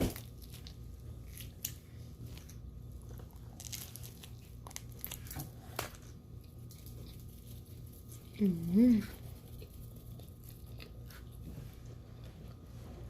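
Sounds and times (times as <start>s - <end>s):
chewing with small crunches: 0.0s - 13.0s
low steady hum: 0.0s - 13.0s.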